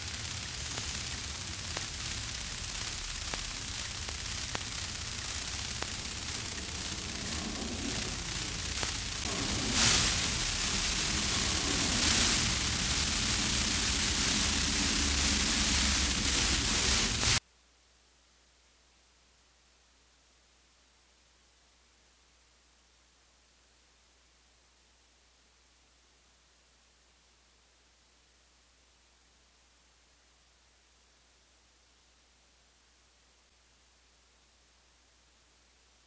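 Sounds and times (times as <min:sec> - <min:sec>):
outdoor hiss: 0:00.0 - 0:36.0
wind rumbling on microphone: 0:03.5 - 0:17.4.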